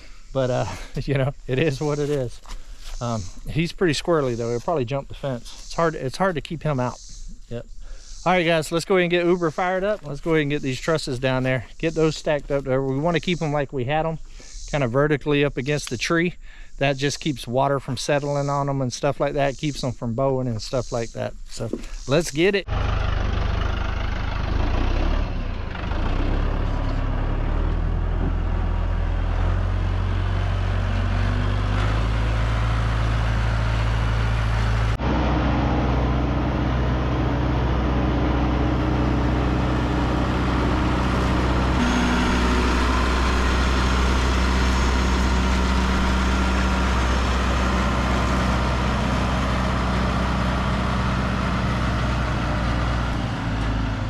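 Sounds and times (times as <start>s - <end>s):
tractor engine running: 21.6s - 54.0s.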